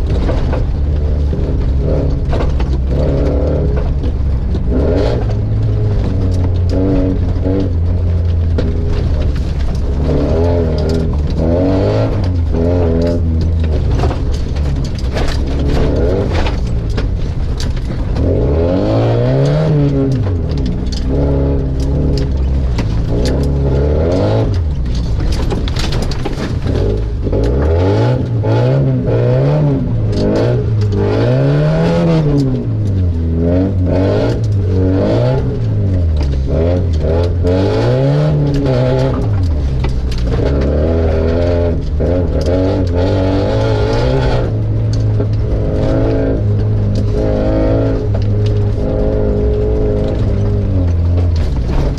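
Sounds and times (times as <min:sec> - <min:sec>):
car engine revving: 0:00.0 - 0:51.9
sharp clicks and knocks: 0:00.0 - 0:51.9.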